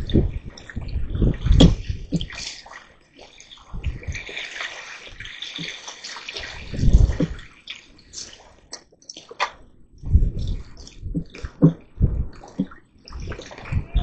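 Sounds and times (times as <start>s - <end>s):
dull low thumps: 0.0s - 2.3s, 6.7s - 7.4s, 9.6s - 14.0s
water splashing and rushing: 0.0s - 8.7s.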